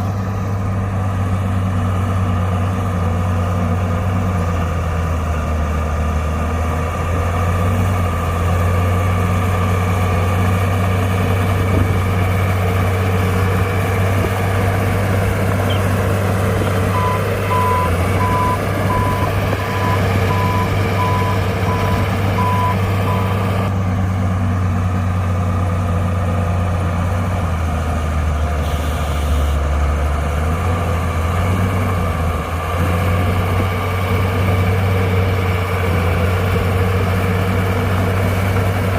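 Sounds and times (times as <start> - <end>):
bulldozer diesel engine running: 0.0 - 38.9
reversing alarm beeping: 16.6 - 23.5.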